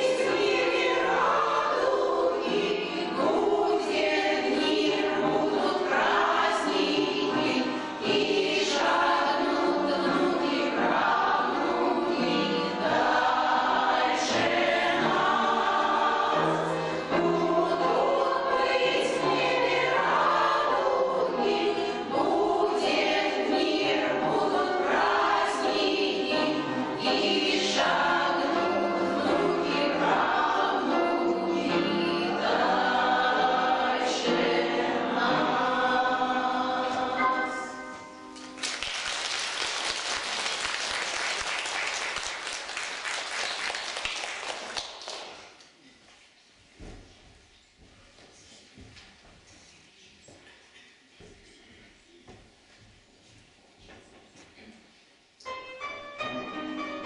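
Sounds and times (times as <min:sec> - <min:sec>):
choir singing: 0:00.0 - 0:38.5.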